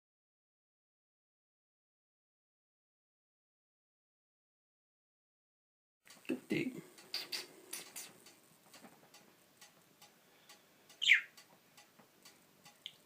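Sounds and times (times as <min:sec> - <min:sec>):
faint irregular clicking: 0:06.1 - 0:13.0
budgerigar chirp: 0:11.0 - 0:11.4.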